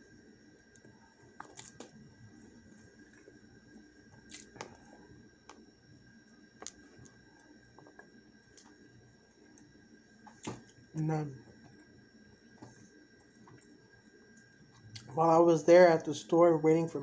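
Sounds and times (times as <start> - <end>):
faint hum: 0.0 - 17.0
crunchy chewing: 0.6 - 5.6.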